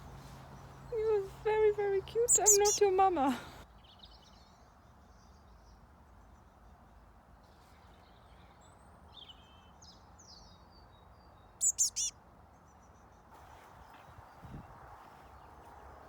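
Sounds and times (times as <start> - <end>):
birds sliding calls: 2.3 - 2.9, 11.6 - 12.1
fledgling bird high chirps: 2.3 - 2.9, 11.6 - 12.1.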